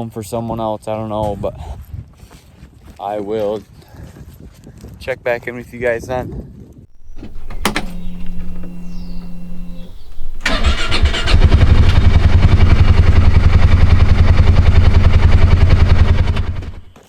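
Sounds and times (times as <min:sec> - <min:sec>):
vehicle engine starting and idling: 0:06.9 - 0:17.0
steady hum: 0:07.0 - 0:16.9.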